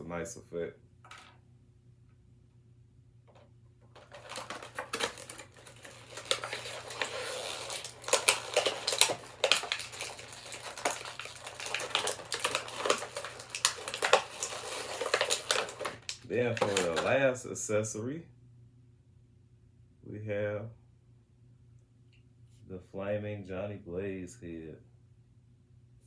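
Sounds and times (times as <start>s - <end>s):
plastic packaging clicks and rustles: 3.8s - 17.3s.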